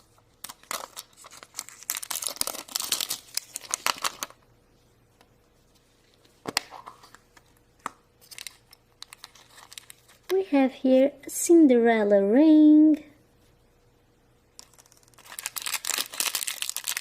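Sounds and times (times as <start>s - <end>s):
wrapper crinkling and tearing: 0.4s - 4.4s, 8.2s - 10.3s, 14.6s - 17.0s.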